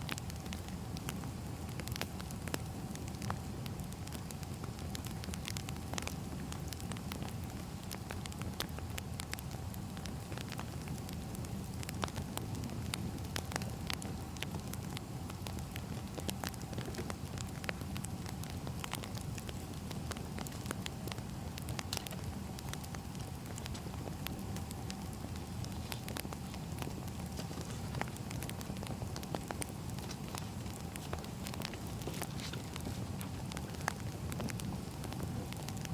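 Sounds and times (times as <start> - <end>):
logs crackling and popping: 0.0 - 35.9
wood fire rumbling: 0.0 - 35.9.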